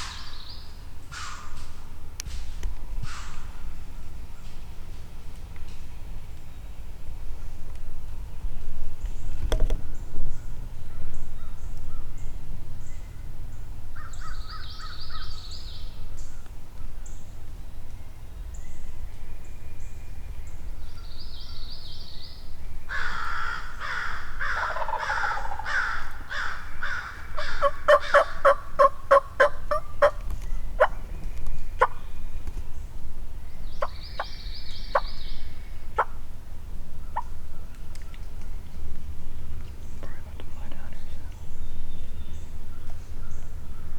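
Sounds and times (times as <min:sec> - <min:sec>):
songbird trills: 0:09.0 - 0:36.3, 0:36.9 - 0:43.9
turkey gobbling: 0:23.8 - 0:30.2, 0:30.8 - 0:31.0, 0:31.8 - 0:32.0, 0:33.8 - 0:34.3, 0:34.9 - 0:35.2, 0:36.0 - 0:36.2.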